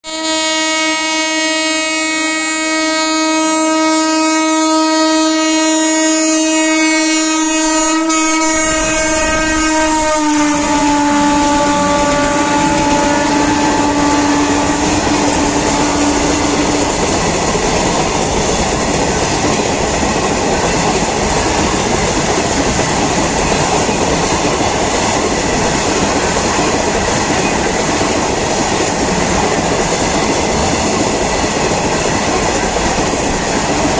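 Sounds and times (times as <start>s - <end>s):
locomotive horn blast: 0.0s - 17.1s
train rumbling past: 1.6s - 33.9s.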